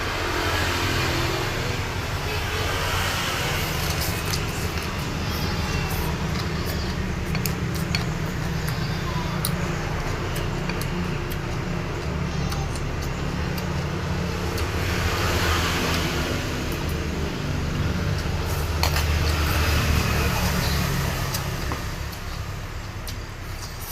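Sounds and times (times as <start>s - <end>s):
utensils clicking on dishes: 3.5s - 14.7s.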